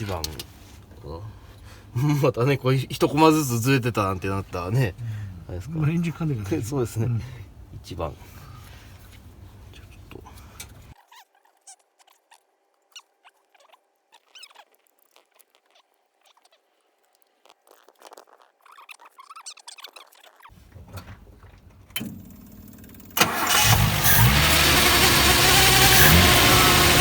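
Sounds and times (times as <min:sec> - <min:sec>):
car starter cranking: 0:21.8 - 0:27.0
car engine running loudly: 0:22.6 - 0:27.0.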